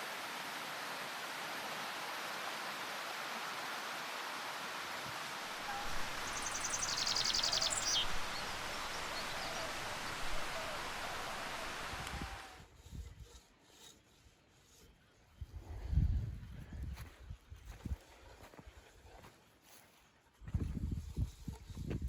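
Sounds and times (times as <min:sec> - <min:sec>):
rushing hiss of outdoor ambience: 0:00.0 - 0:12.6
high-pitched bird or insect trill: 0:05.8 - 0:10.9.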